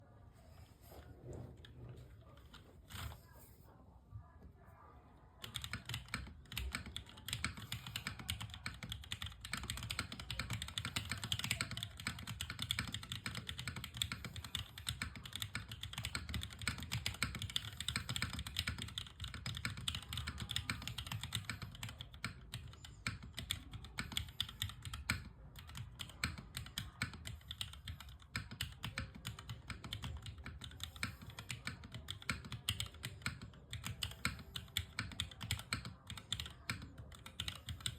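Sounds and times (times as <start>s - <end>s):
mechanical keyboard typing: 5.4s - 37.9s.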